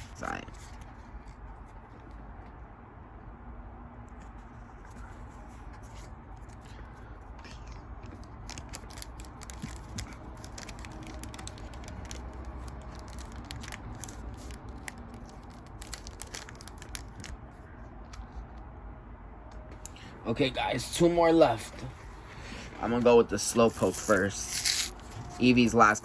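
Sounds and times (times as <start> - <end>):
foil wrapper crinkling: 8.0 - 17.4.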